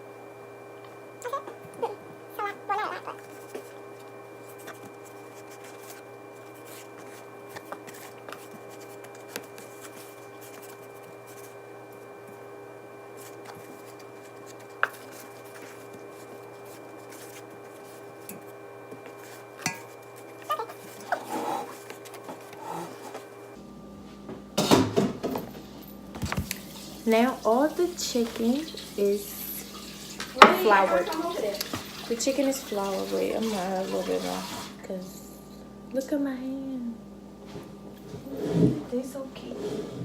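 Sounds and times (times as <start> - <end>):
soft handling noises: 2.7 - 12.4, 13.1 - 24.2.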